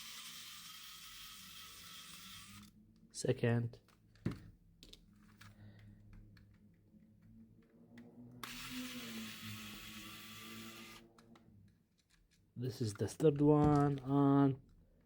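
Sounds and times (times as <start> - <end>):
steady whir: 8.3 - 11.3.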